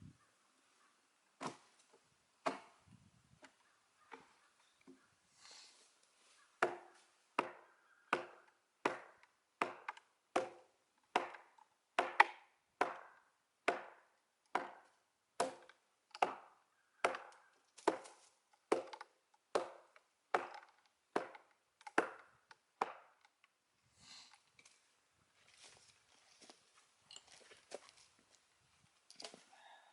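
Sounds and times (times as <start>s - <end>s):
hatchet chopping log: 2.4s - 2.8s, 6.6s - 23.3s.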